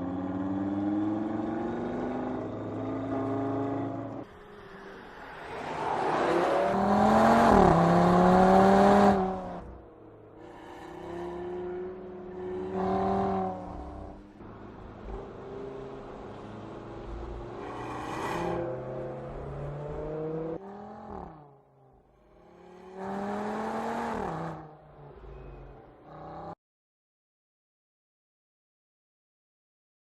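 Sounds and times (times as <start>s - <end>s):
car engine accelerating hard: 0.0s - 9.8s, 10.4s - 21.6s.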